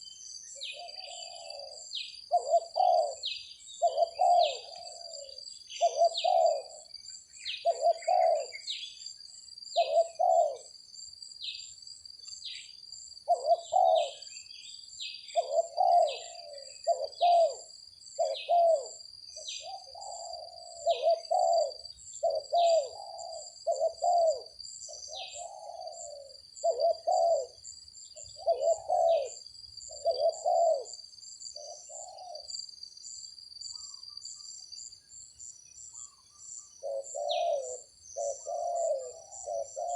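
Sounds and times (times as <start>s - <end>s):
doves cooing: 0.6s - 6.9s, 7.5s - 8.8s, 9.8s - 10.7s, 13.3s - 14.4s, 15.3s - 31.0s, 31.6s - 32.6s, 36.0s - 39.9s.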